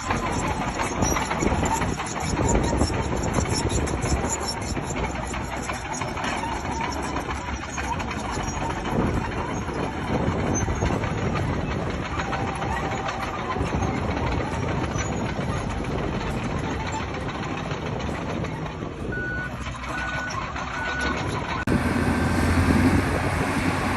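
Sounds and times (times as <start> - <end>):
bulldozer diesel engine: 0.0 - 23.9
steel tracks clanking: 0.0 - 23.9.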